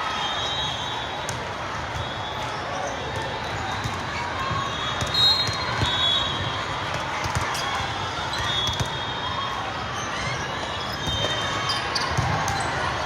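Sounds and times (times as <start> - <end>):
sneakers squeaking: 0.4 - 6.6, 10.0 - 13.0.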